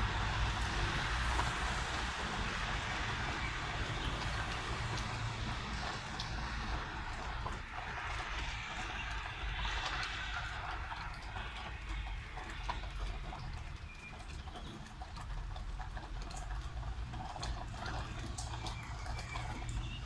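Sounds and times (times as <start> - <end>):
low city rumble: 0.0 - 20.0
rain drips and taps: 0.0 - 20.0.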